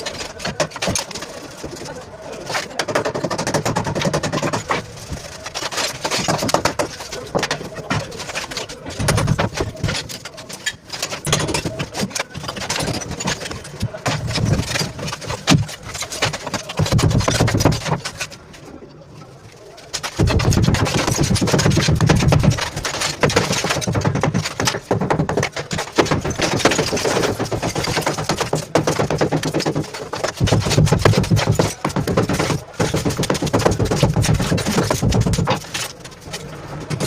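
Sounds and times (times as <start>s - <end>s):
demolition hammer chiselling masonry: 0.0s - 18.4s, 19.9s - 37.0s.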